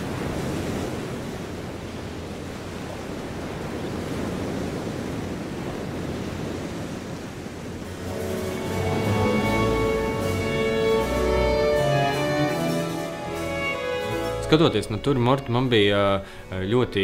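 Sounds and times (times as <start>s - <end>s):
steady rushing noise: 7.5s - 14.3s.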